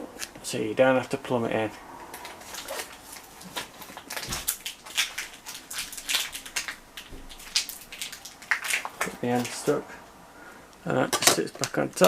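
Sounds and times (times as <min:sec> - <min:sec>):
plastic crackling and rustling: 0:02.0 - 0:09.8, 0:11.1 - 0:12.0
plastic film peeling: 0:02.1 - 0:09.8.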